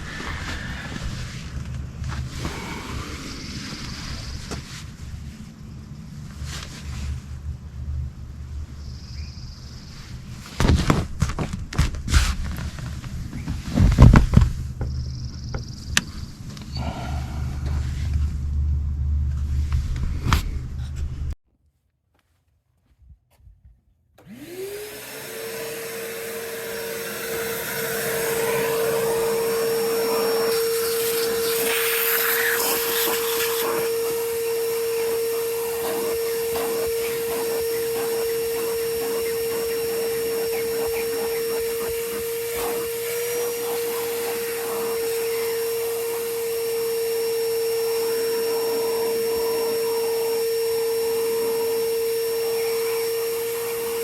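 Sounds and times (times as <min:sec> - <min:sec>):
vacuum cleaner motor whine: 0:00.0 - 0:10.6, 0:24.2 - 0:54.0.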